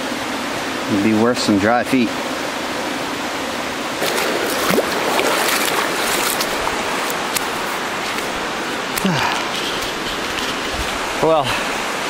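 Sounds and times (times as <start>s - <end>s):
creek rushing over rocks: 0.4s - 12.0s
sharp splashes and knocks: 4.0s - 8.3s.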